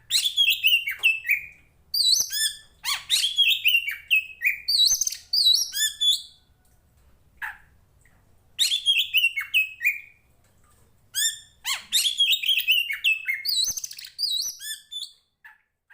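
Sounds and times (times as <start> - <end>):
bird singing whistled notes: 0.1 - 6.4, 8.6 - 10.2, 11.2 - 15.2.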